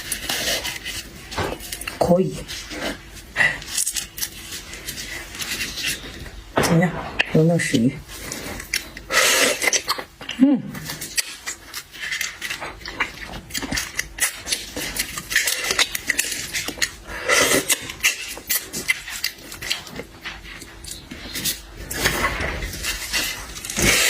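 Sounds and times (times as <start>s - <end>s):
person chewing and slurping: 0.0s - 6.5s, 8.0s - 24.0s.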